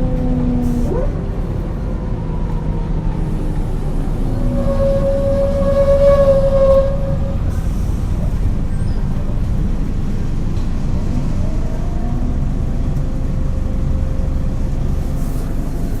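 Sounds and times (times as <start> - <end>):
bus diesel engine rumble: 0.0 - 16.0
steady whine: 3.1 - 8.7
faint whine rising in pitch: 3.2 - 7.5.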